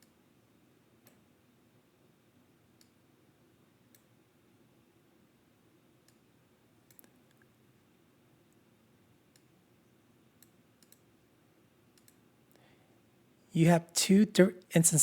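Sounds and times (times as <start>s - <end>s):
faint sharp clicks: 6.9s - 7.5s, 10.4s - 11.0s, 12.0s - 12.6s.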